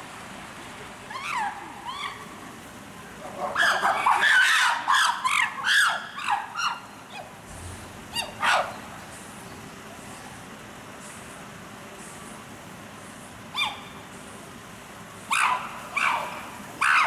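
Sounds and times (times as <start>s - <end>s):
chimpanzees calling: 15.3s - 17.0s.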